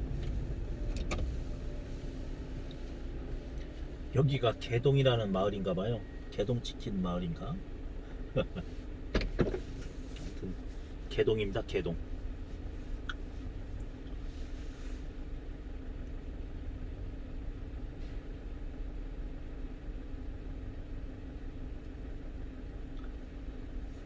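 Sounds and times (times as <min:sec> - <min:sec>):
truck engine drone: 0:00.0 - 0:08.8
road rumble: 0:00.0 - 0:24.0.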